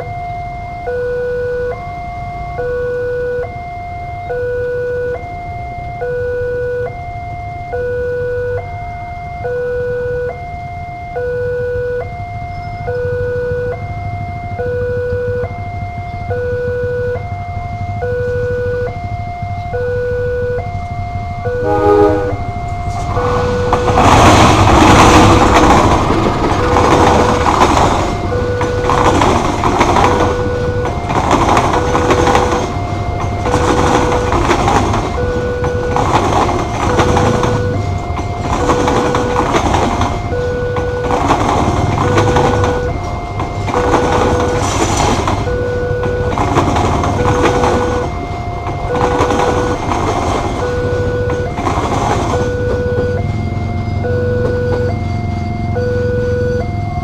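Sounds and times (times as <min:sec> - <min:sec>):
level-crossing warning alarm: 0:00.0 - 0:57.0
train wheels clattering over rails: 0:22.7 - 0:55.4.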